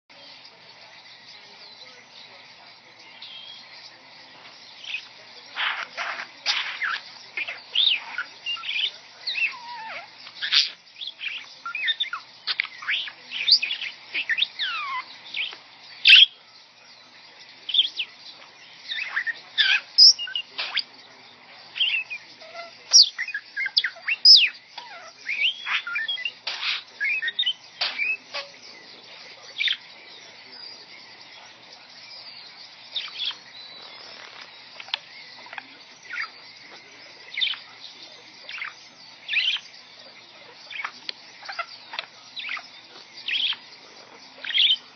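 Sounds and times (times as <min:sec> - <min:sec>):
pet bird chattering and whistling: 0:04.8 - 0:16.4, 0:18.9 - 0:20.9, 0:21.7 - 0:28.6, 0:29.6 - 0:29.9, 0:33.0 - 0:36.5, 0:37.1 - 0:39.8, 0:40.5 - 0:44.9.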